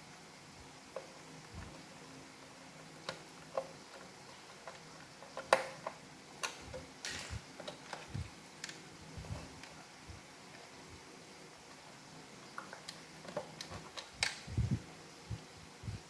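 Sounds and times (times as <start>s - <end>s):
plastic parts clicking and tapping: 3.0s - 8.8s.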